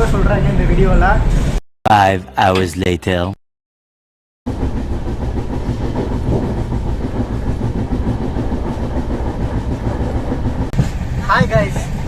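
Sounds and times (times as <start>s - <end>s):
passenger train rumbling: 0.0s - 1.6s, 4.5s - 12.0s
rail clatter: 4.5s - 12.0s.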